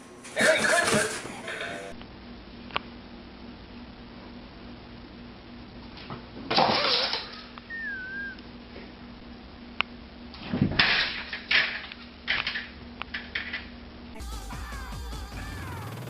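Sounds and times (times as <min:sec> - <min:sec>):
short high squeak: 0:07.7 - 0:08.4.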